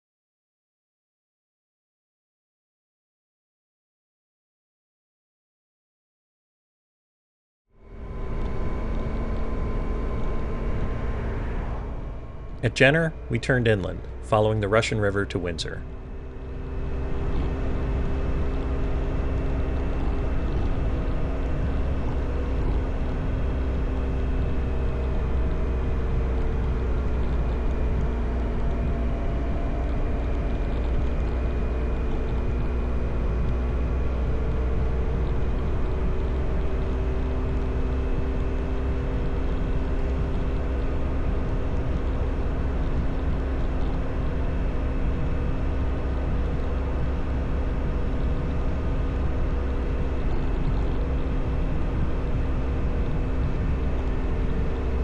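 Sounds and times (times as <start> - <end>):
motorcycle engine running: 7.8 - 55.0
wind rumble on microphone: 15.9 - 55.0.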